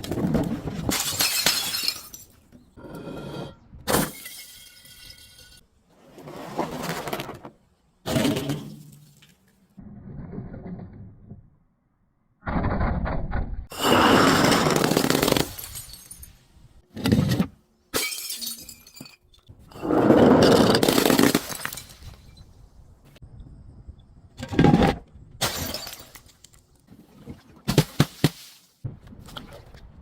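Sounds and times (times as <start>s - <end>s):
glass bottles shattering: 0.9s - 2.4s, 3.9s - 5.6s, 13.7s - 16.4s, 18.0s - 19.2s, 20.8s - 22.2s, 25.4s - 26.3s.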